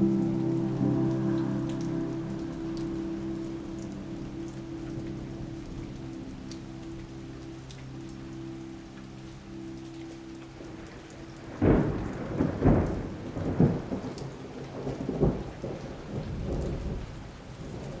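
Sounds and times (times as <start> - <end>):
steady rain falling: 0.0 - 18.0
thunder rolling: 11.6 - 14.1.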